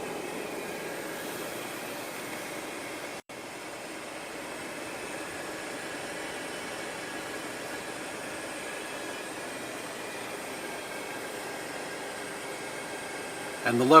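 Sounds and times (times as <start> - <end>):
car air conditioning hiss: 0.0 - 14.0.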